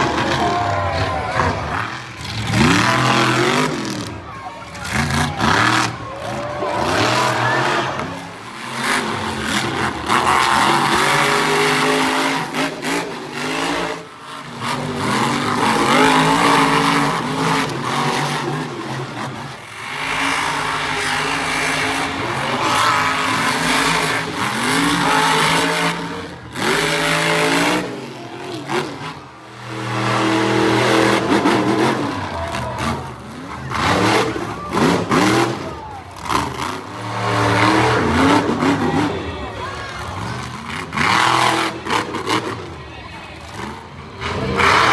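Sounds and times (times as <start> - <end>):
monster truck engine revving: 0.0 - 44.9.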